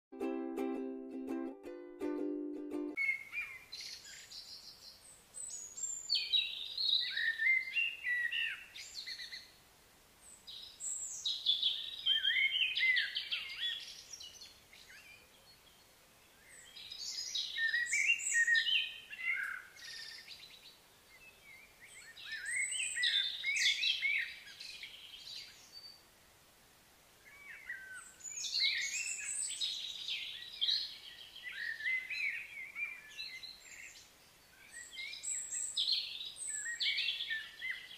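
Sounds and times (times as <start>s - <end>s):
faint outdoor hiss: 0.1s - 37.9s
songbird warbling: 16.4s - 20.5s, 21.1s - 25.9s.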